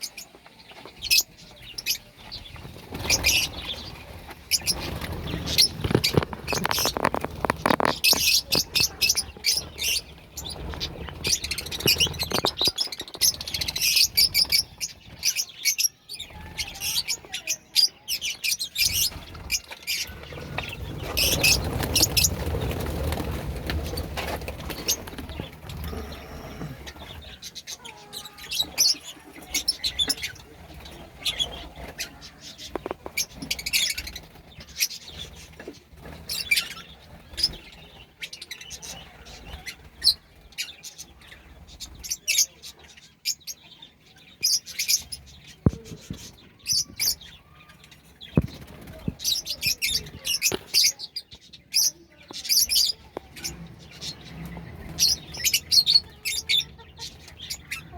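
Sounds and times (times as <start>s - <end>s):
budgerigars chirping: 0.9s - 57.9s
loud rustling: 2.6s - 14.5s.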